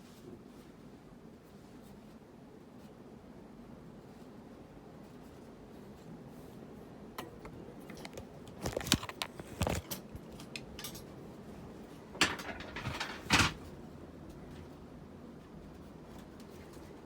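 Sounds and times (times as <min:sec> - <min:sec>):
faint steady background noise: 0:00.0 - 0:17.0
objects clattering and knocking: 0:07.9 - 0:10.1, 0:12.1 - 0:13.7.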